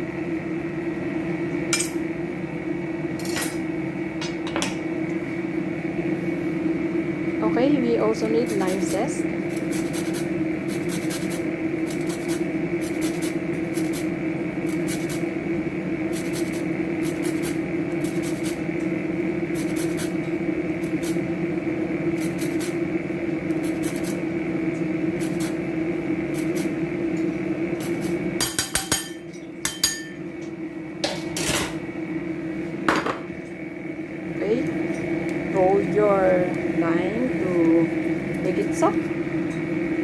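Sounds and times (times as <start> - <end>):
steady low hum: 0.0 - 40.0
grater rasping: 8.4 - 14.1, 14.7 - 15.2, 16.1 - 18.6, 19.5 - 20.2, 22.2 - 22.8, 23.5 - 24.2, 25.2 - 25.6, 26.3 - 26.8.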